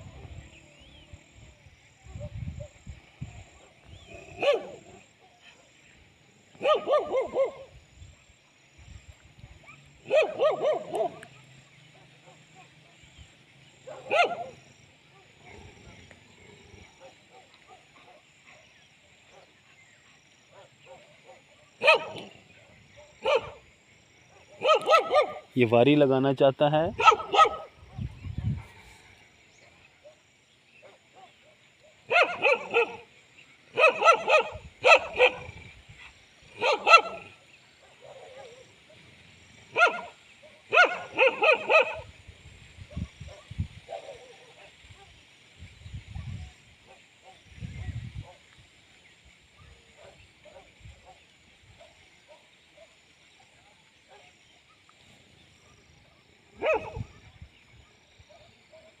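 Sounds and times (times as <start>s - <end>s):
dog barking: 3.6s - 5.1s, 6.6s - 7.7s, 9.6s - 11.3s, 13.8s - 15.6s, 17.0s - 18.7s, 20.5s - 22.4s, 23.0s - 23.7s, 24.3s - 25.5s, 27.0s - 28.8s, 30.8s - 33.1s, 33.7s - 35.6s, 36.5s - 39.0s, 39.7s - 42.1s, 42.9s - 45.2s, 49.6s - 54.9s, 56.6s - 57.2s, 58.3s - 59.0s
dog barking sharply: 6.6s - 7.6s, 10.1s - 11.2s, 14.0s - 14.5s, 21.8s - 22.3s, 24.6s - 25.4s, 27.0s - 27.7s, 32.1s - 33.0s, 33.8s - 35.4s, 36.6s - 37.2s, 56.6s - 57.0s
dogs fighting: 27.0s - 28.7s.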